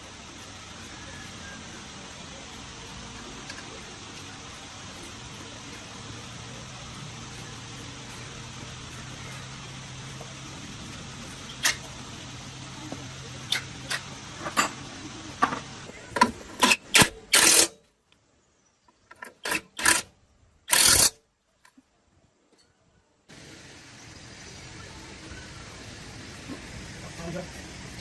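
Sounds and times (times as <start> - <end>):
steady machine hum: 0.0 - 17.3.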